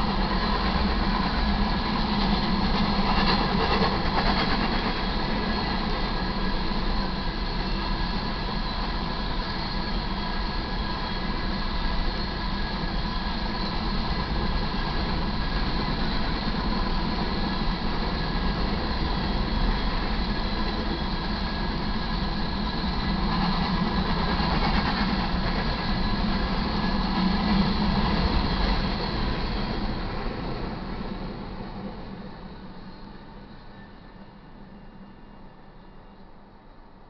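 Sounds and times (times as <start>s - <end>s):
steel wheels clattering on rail: 0.0s - 34.2s.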